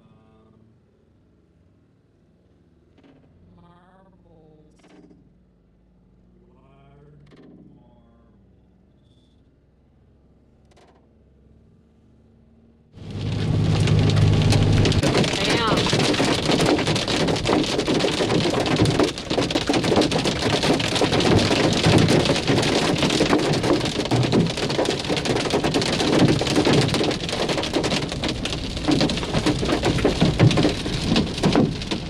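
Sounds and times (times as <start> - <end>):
hail striking hard surfaces: 13.0 - 32.0.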